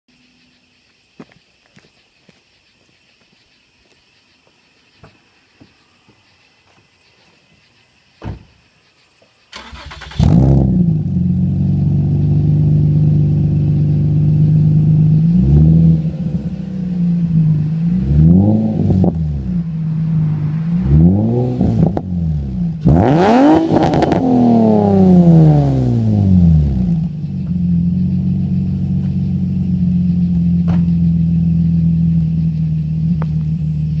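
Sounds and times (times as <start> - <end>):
car engine idling and revving: 9.6 - 34.0.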